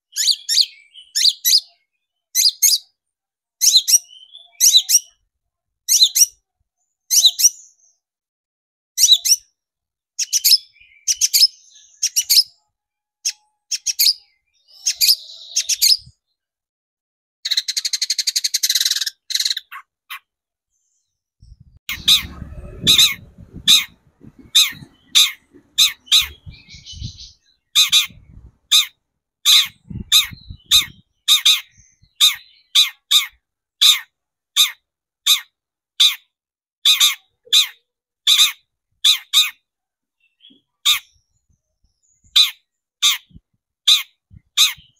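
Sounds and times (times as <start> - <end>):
faint low thumps: 21.4 - 27.3
bird harsh buzzing chatter: 21.9 - 34.0.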